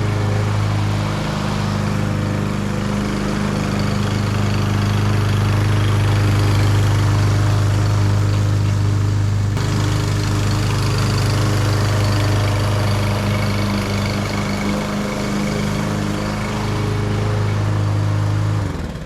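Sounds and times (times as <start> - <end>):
lawn mower engine cutting grass: 0.0 - 19.0.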